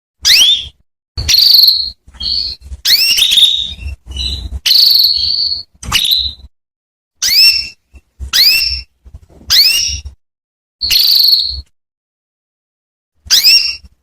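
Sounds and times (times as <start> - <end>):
canary chirping and trilling: 0.2 - 6.5, 7.2 - 10.2, 10.8 - 11.8, 13.2 - 14.0.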